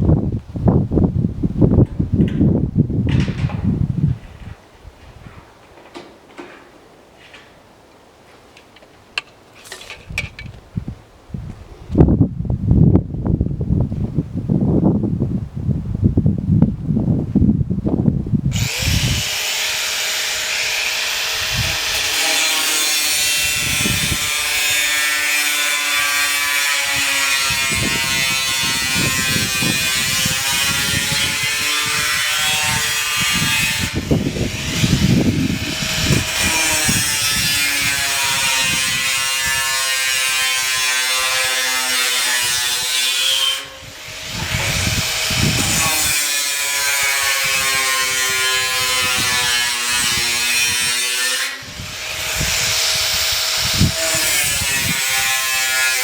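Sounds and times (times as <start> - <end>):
power tool cutting steel sheet: 18.5 - 56.0.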